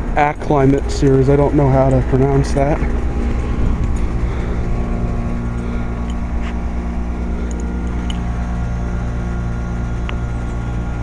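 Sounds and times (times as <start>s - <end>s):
heat pump units humming: 0.0s - 11.0s.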